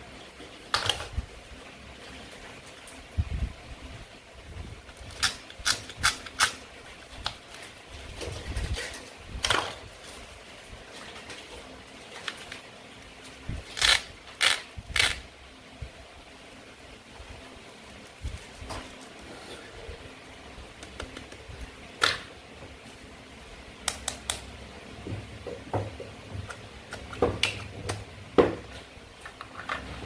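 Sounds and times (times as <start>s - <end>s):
toy knife cutting toy food: 13.8s - 15.2s.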